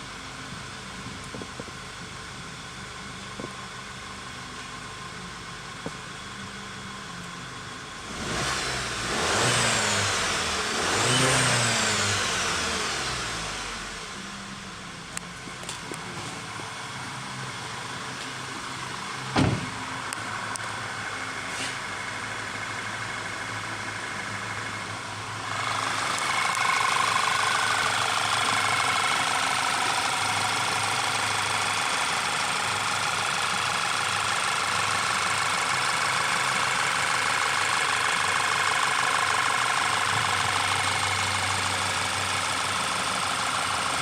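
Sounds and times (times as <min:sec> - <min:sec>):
car engine idling: 0:00.0 - 0:44.0
sharp thump: 0:19.3 - 0:19.8.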